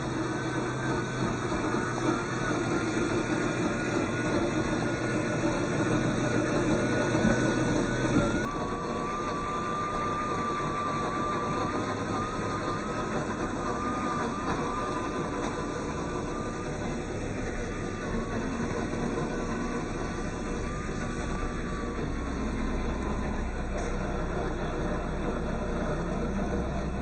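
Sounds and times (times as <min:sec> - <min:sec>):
toy truck motor whining: 0:00.0 - 0:27.0.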